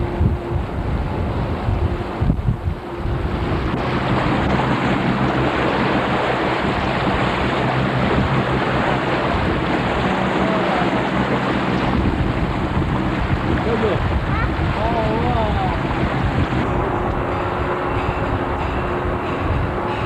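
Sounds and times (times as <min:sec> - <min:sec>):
low hum: 0:00.0 - 0:20.0
rushing water: 0:00.0 - 0:20.0
wind buffeting microphone: 0:00.0 - 0:20.0.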